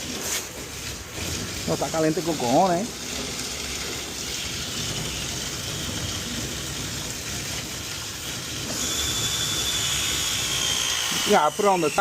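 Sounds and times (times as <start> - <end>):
faint high whistle: 8.8 - 10.0, 11.4 - 12.0.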